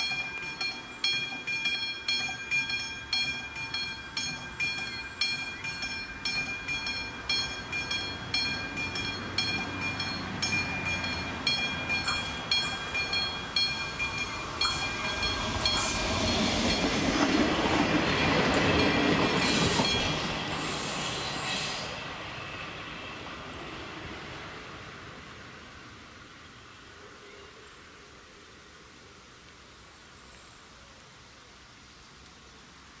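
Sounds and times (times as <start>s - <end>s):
level crossing warning bell: 0.0s - 17.2s, 18.6s - 20.4s
passenger train passing: 0.0s - 26.6s.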